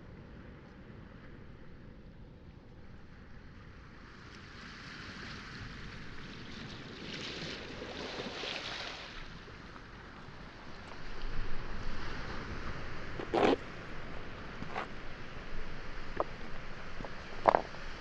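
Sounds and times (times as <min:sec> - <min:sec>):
waves washing onto pebbles: 0:04.0 - 0:18.0
low bumps: 0:15.7 - 0:18.0.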